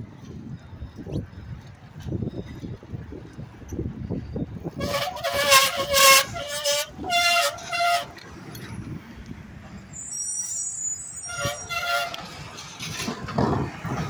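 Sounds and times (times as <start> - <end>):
vehicle horn honking: 4.8 - 8.2, 11.2 - 12.3
faint high squeal: 9.9 - 12.1.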